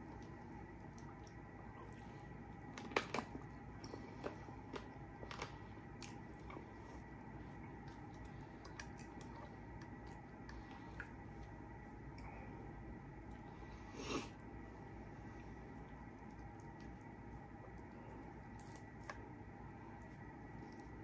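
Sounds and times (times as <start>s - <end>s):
person chewing with mouth smacks: 7.6s - 12.3s.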